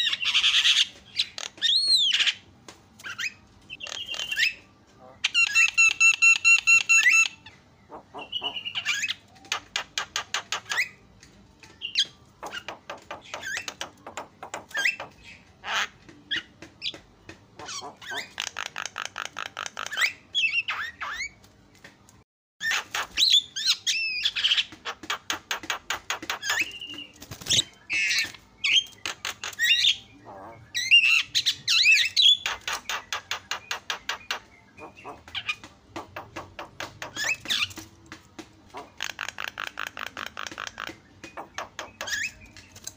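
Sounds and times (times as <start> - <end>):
bird singing rattling chatter: 0.0 - 21.4, 22.6 - 42.9
bird harsh squawks: 3.8 - 9.2.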